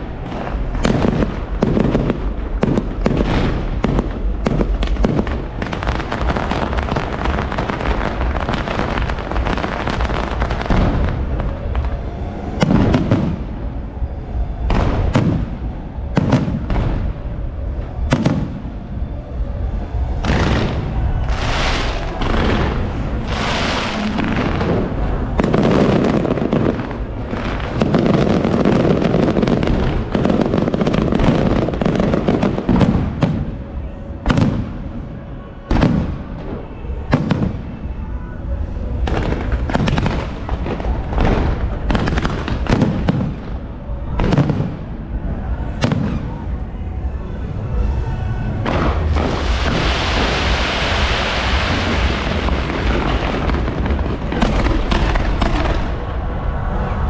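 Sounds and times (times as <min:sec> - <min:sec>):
fireworks crackling: 0:00.0 - 0:46.7, 0:47.8 - 0:57.0
fireworks bangs and booms: 0:00.0 - 0:57.0
firework rising hiss: 0:20.3 - 0:28.5, 0:48.7 - 0:56.0.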